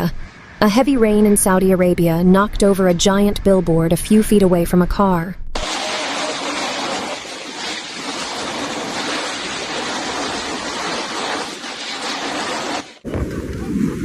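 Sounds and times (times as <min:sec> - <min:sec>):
heavy rain downpour: 0:05.6 - 0:13.1.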